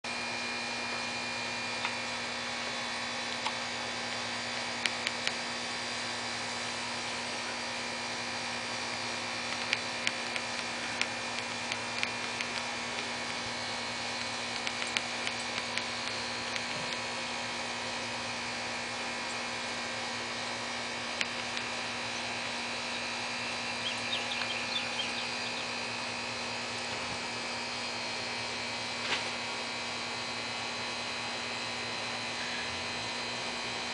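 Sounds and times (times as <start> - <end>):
steady multi-tone hum: 0.1 - 33.9
high ticks: 9.5 - 13.4, 14.2 - 17.0, 23.8 - 25.6.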